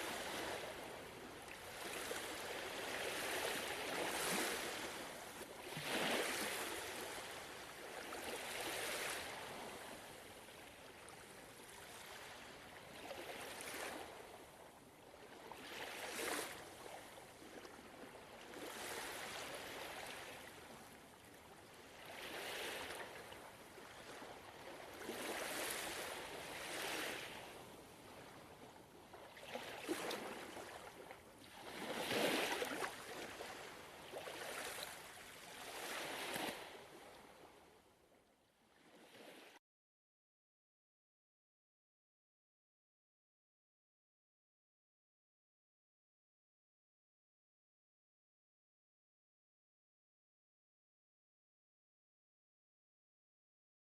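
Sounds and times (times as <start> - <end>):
ocean waves lapping at shore: 0.0 - 37.8, 38.6 - 39.6.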